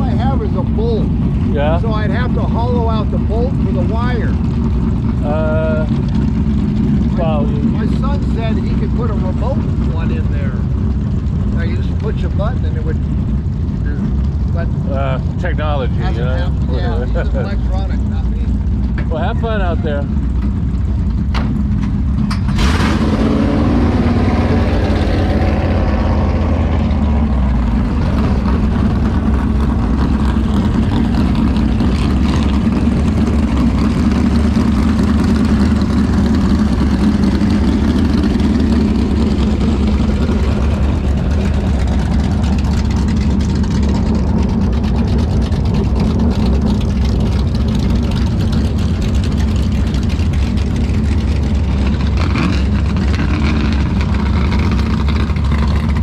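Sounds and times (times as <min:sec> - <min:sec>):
race car engines running loudly: 0:00.0 - 0:56.0.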